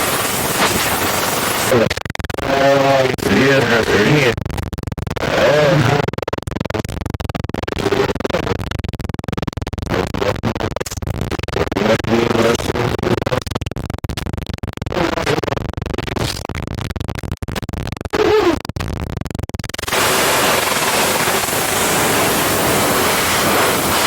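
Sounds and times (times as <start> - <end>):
tv static: 0.0 - 4.4, 19.6 - 24.0
distorted broadcast fragments: 0.0 - 24.0
static crackles: 0.0 - 24.0.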